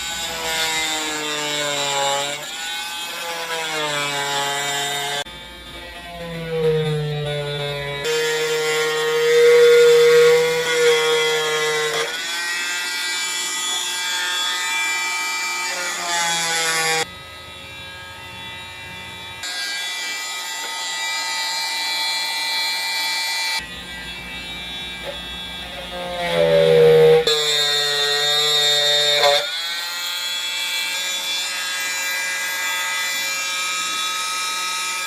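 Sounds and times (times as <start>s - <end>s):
rotary tool grinding wood: 23.9s - 35.0s.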